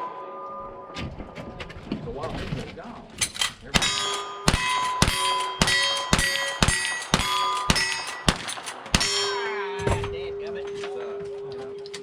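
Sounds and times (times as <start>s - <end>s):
ring of struck steel target: 3.8s - 10.4s.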